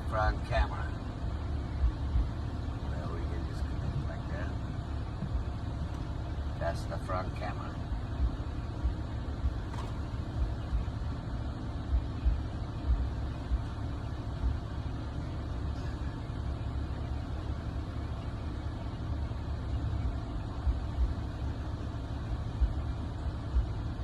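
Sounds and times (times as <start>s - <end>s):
short low bumps: 0.0s - 17.0s
car engine idling: 0.0s - 24.0s.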